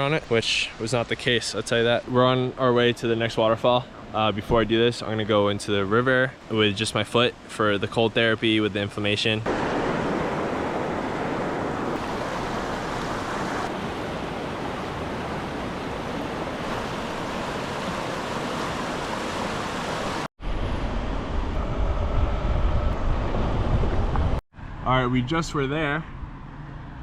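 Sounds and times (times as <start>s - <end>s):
fast river rushing: 0.0s - 20.3s.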